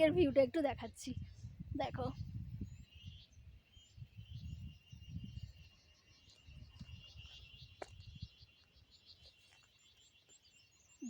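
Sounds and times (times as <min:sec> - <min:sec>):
wind gusts on microphone: 0:00.0 - 0:09.0
bird chirps: 0:00.7 - 0:11.0.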